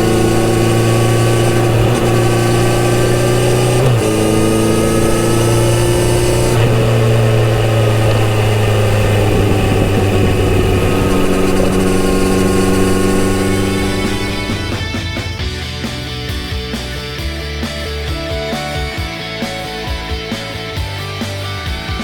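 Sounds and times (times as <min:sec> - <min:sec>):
motorcycle engine running: 0:00.0 - 0:22.0
wind rush: 0:07.9 - 0:15.6.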